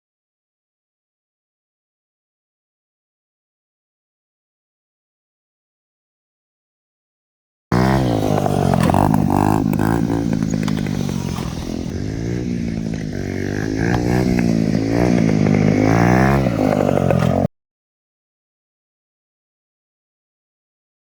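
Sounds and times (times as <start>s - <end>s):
small engine revving: 7.7s - 17.5s.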